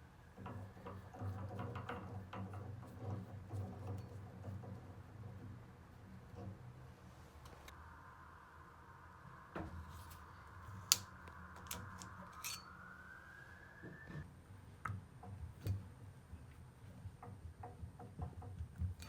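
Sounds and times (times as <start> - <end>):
water hissing through plumbing: 8.1 - 14.3
sharp clicks and knocks: 14.8 - 19.0.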